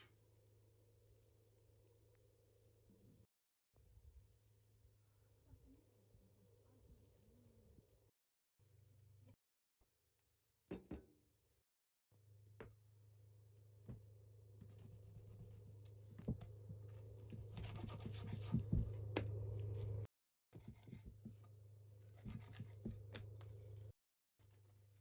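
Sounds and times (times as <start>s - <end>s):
low steady hum: 12.2s - 23.9s
scratching and scraping: 14.6s - 25.0s.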